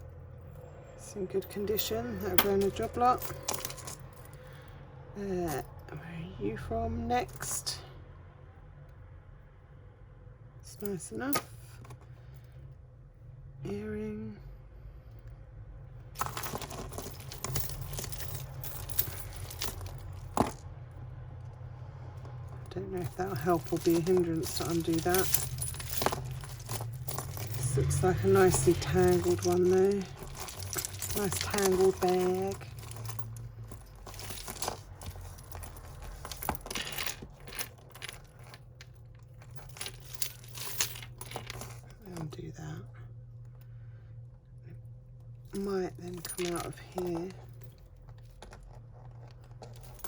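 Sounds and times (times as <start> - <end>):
low steady hum: 0.0 - 50.0
beads and chains rattling: 0.4 - 4.7, 16.1 - 20.8, 21.8 - 42.7, 45.4 - 50.0
rustling: 16.2 - 20.6, 22.4 - 42.0.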